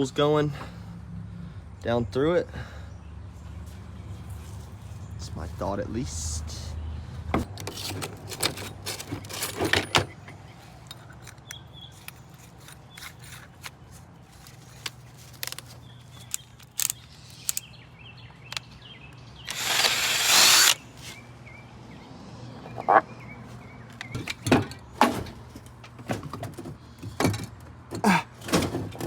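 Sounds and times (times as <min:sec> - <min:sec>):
tools clicking and knocking: 0:07.4 - 0:17.7
birds chirping: 0:08.9 - 0:25.0
power tool burst: 0:19.5 - 0:20.8.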